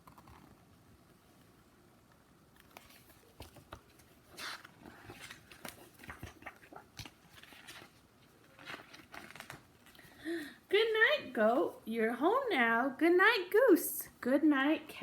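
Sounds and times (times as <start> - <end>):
book handling clicks and rustles: 0.0 - 0.6, 2.5 - 10.2
page turning: 2.5 - 10.1.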